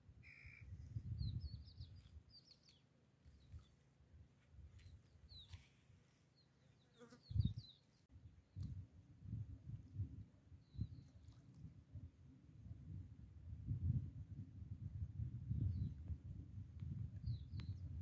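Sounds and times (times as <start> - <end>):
small birds chirping: 0.2 - 3.8, 4.8 - 5.8, 6.4 - 8.1.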